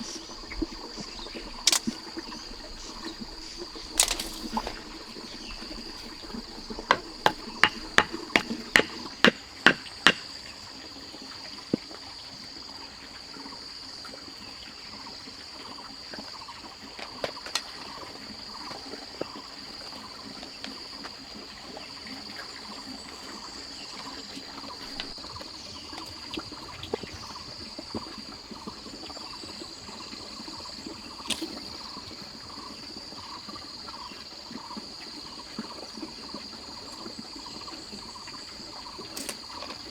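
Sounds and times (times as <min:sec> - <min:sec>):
tool knocking sharply: 0:06.8 - 0:10.2.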